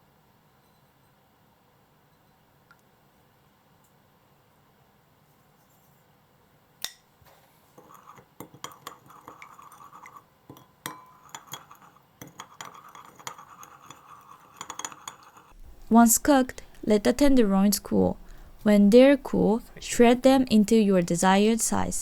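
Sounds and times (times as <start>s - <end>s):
utensil scraping and clinking dish: 7.7s - 16.8s.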